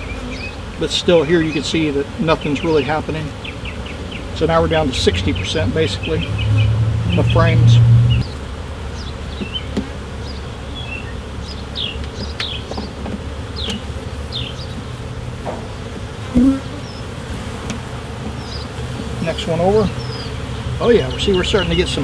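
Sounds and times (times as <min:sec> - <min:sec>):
honeybees buzzing: 0:00.0 - 0:22.0.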